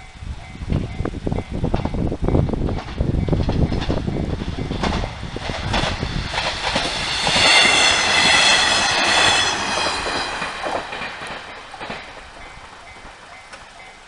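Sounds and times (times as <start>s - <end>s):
train wheels clacking over rail joints: 0.4s - 14.0s
high-pitched wheel screech: 6.0s - 10.8s.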